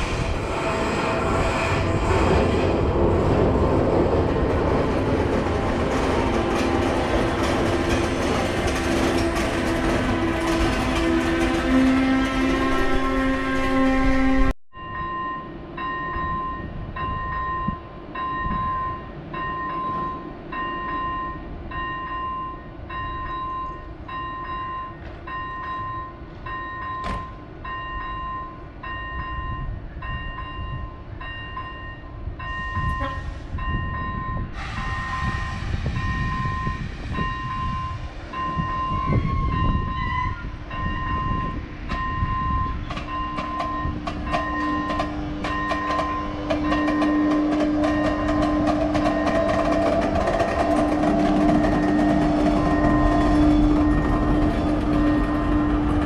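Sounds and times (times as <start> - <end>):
train pulling out: 0.0 - 14.5, 31.2 - 56.0
hiss: 34.6 - 36.2.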